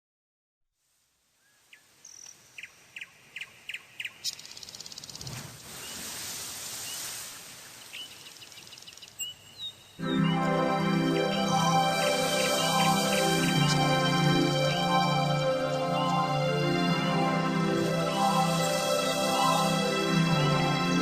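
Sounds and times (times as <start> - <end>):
songbirds calling: 1.4 - 6.0, 7.7 - 20.0
loud music: 10.0 - 21.0.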